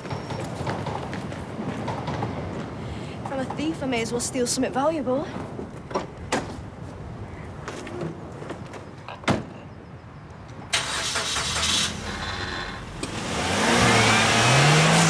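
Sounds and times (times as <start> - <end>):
car engine starting and running: 10.7 - 15.0.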